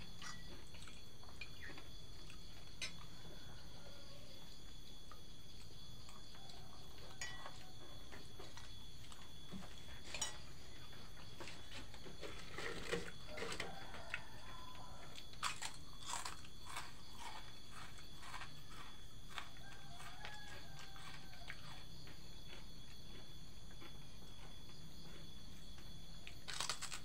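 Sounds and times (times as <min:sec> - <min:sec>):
person chewing: 0:15.4 - 0:24.5, 0:26.5 - 0:27.0.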